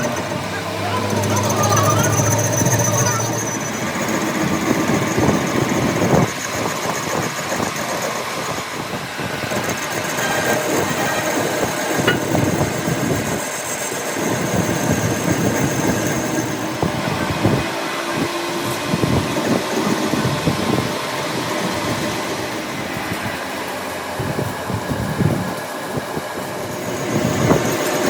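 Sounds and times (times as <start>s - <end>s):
machine running steadily: 0.0s - 28.0s
irregular clattering and knocking: 12.0s - 12.6s.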